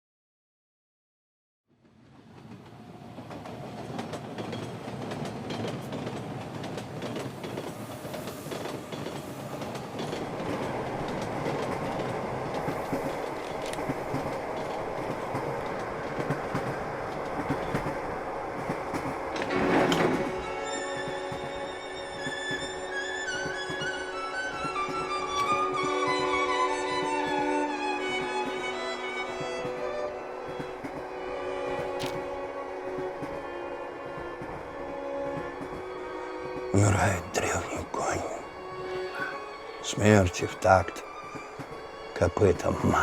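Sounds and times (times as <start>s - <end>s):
train wheels clattering on rails: 1.9s - 38.4s.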